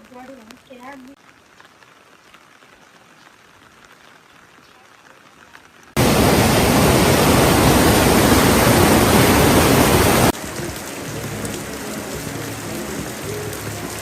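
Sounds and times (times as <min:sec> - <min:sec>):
faint rain: 0:00.0 - 0:14.0
loud rush of water: 0:05.9 - 0:14.0.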